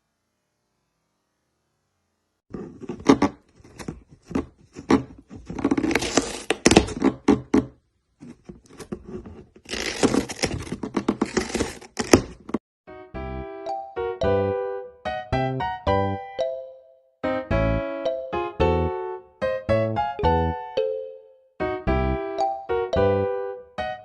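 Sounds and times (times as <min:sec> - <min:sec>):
rustling and scraping: 0:02.5 - 0:12.6
piano tune: 0:12.9 - 0:24.0.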